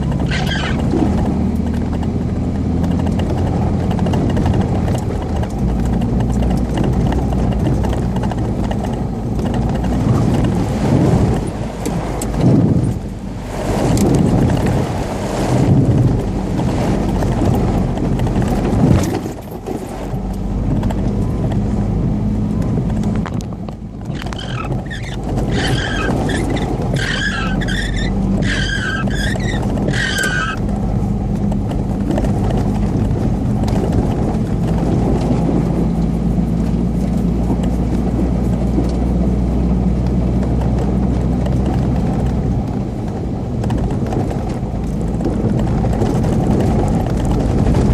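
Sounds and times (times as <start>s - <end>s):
vehicle engine droning under load: 0.0s - 47.9s
wavering high-pitched squeal: 24.2s - 30.6s.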